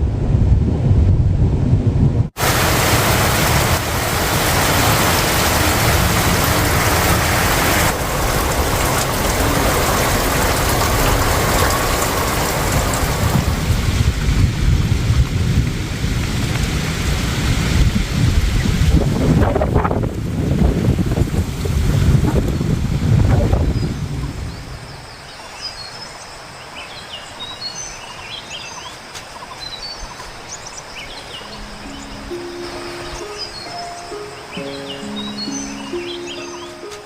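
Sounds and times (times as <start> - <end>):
wind buffeting microphone: 0.0 - 25.2
heavy rain pouring: 2.3 - 25.2, 29.9 - 37.0.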